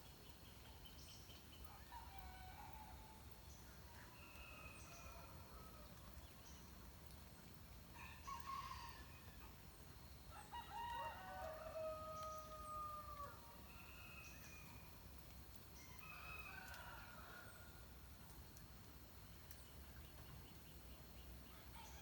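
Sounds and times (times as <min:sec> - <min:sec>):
faint rooster crowing: 0:01.7 - 0:03.2, 0:03.9 - 0:06.0, 0:08.0 - 0:09.5, 0:10.3 - 0:14.9, 0:15.8 - 0:17.8, 0:21.5 - 0:22.0.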